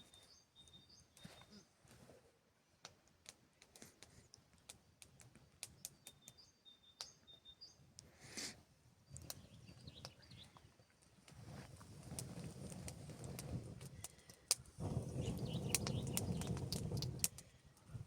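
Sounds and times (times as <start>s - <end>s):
faint clicks and ticks: 2.8s - 6.4s, 9.1s - 18.0s.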